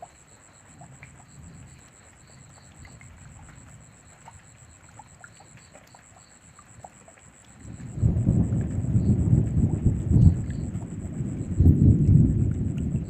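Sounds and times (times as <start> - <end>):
rain falling: 0.0 - 13.0
thunder rumbling: 7.6 - 13.0.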